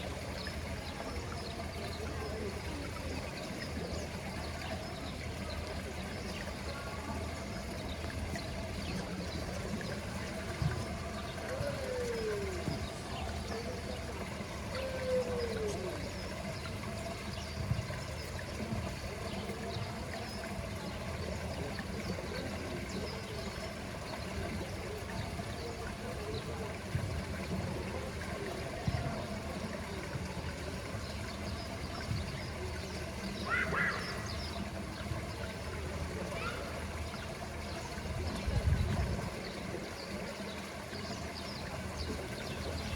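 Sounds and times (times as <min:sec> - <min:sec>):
trickling water: 0:00.0 - 0:42.9
faint bird calls: 0:32.6 - 0:34.8, 0:36.2 - 0:37.2.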